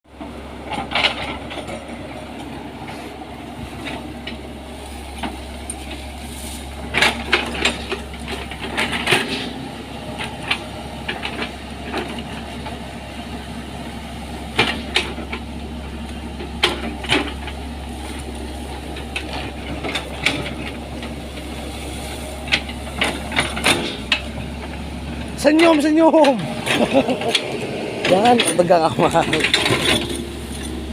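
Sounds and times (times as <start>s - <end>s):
excavator diesel engine running: 0.1s - 30.9s
sharp metallic knocks and clanks: 6.9s - 9.6s, 22.5s - 24.4s, 25.4s - 30.8s.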